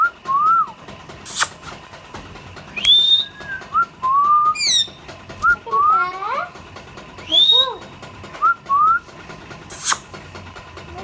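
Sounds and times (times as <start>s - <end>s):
parrots whistling: 2.8s - 6.0s, 7.2s - 7.8s, 9.7s - 10.1s
shrill parrot screech: 9.7s - 10.0s.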